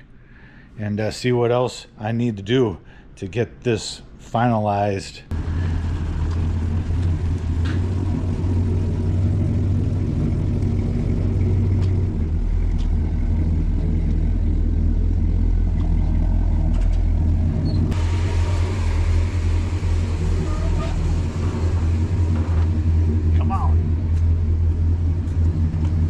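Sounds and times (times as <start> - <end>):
rough hissy exhaust: 5.3 - 10.1, 17.8 - 24.5
car engine idling: 5.3 - 26.0.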